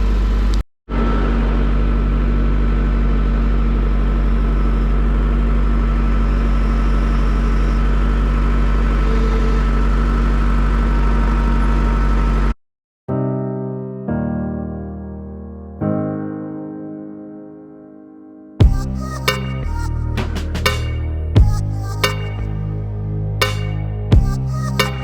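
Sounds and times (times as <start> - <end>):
engine running steadily: 0.0 - 12.5.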